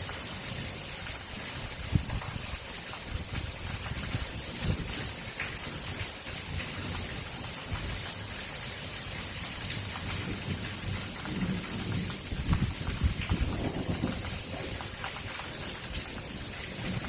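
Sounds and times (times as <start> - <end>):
heavy rain pouring: 0.0 - 17.0
thunder rumbling: 10.1 - 15.2.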